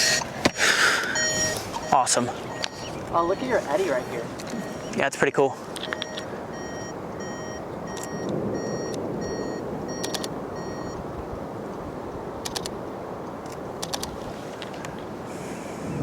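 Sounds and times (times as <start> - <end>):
vehicle warning chime beeps: 0.0 - 11.1
wind on microphone: 0.0 - 16.0
sharp clicks: 5.7 - 6.3, 7.9 - 9.0, 10.0 - 10.4, 12.4 - 12.8, 13.4 - 14.9.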